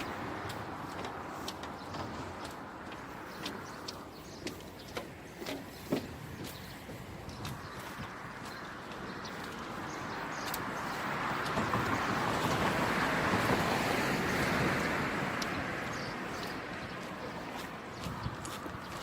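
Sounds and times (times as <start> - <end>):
vehicle passing by: 9.6 - 18.0.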